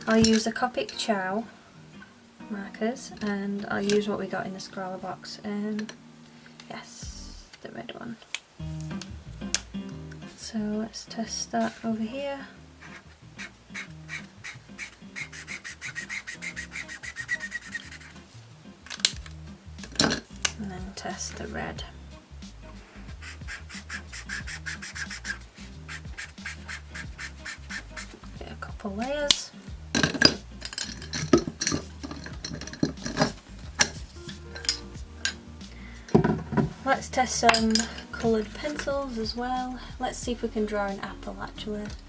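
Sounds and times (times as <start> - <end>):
marker scribbling on paper: 12.8 - 18.4, 23.1 - 28.4.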